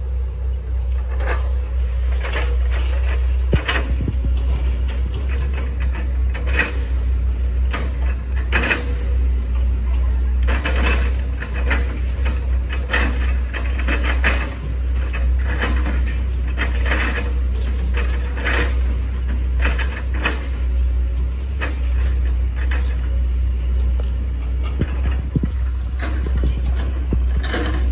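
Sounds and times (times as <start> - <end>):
excavator engine droning: 0.0 - 27.9.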